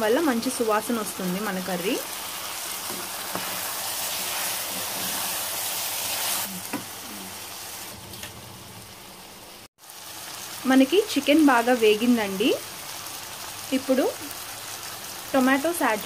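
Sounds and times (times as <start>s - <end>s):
chicken sizzling in oil: 0.0s - 16.0s
spatula stirring in pot: 2.4s - 6.9s.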